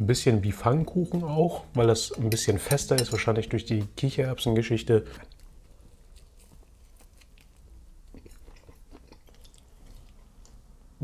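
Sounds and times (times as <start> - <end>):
person chewing with mouth clicks: 5.2 - 10.6.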